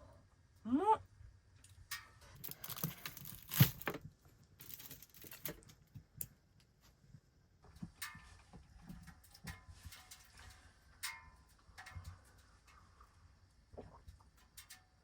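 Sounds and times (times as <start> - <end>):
rustling and crinkling: 2.2 - 6.1.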